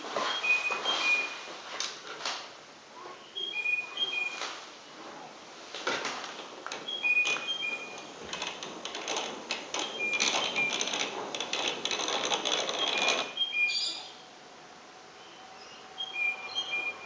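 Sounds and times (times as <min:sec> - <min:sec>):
model train wheels clattering: 0:08.0 - 0:13.4.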